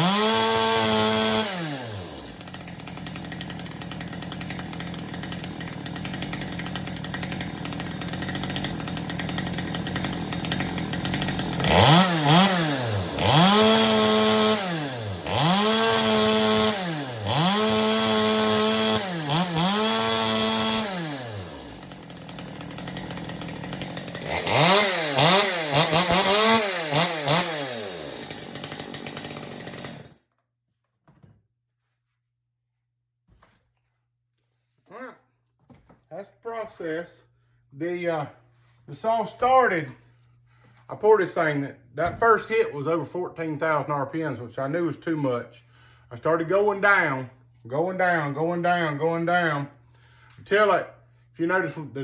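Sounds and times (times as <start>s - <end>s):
chainsaw idling and revving: 0.0s - 30.2s.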